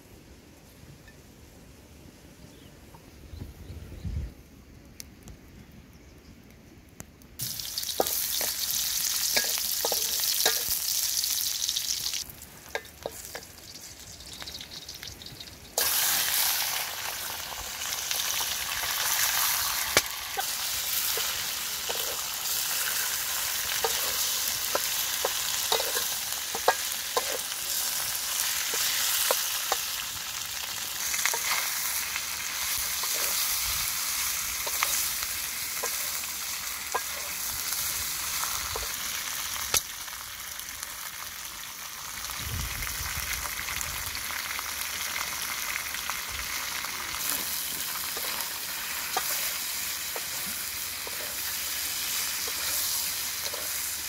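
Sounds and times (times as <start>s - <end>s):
fish sizzling in a wok: 7.4s - 54.0s
wooden spatula scraping a pan: 47.2s - 53.9s.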